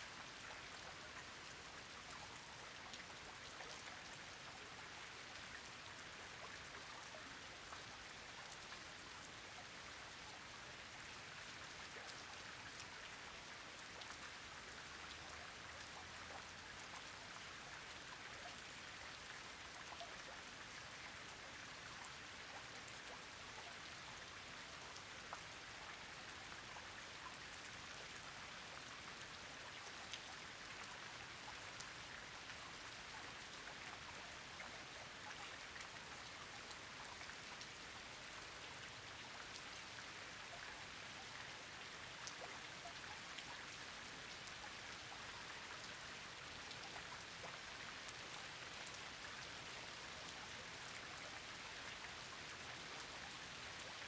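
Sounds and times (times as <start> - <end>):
rain falling: 0.2 - 54.0.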